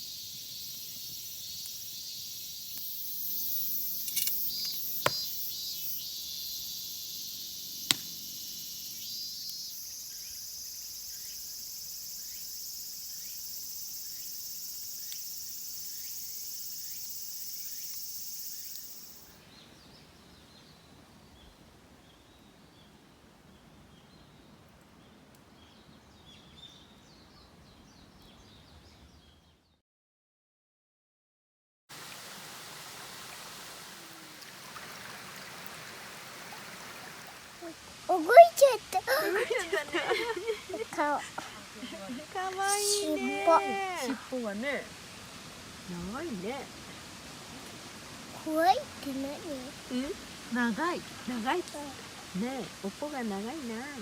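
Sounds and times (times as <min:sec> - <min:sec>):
insects shrilling: 0:00.0 - 0:19.4, 0:42.6 - 0:44.1
faint hiss: 0:00.0 - 0:26.1, 0:31.9 - 0:54.0
sharp click: 0:04.0 - 0:05.2.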